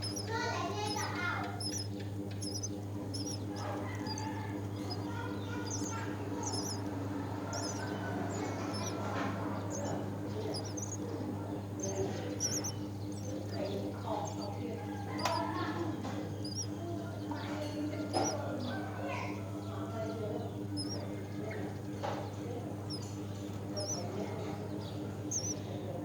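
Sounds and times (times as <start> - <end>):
nestlings cheeping: 0.0 - 26.0
steady low hum: 0.0 - 26.0.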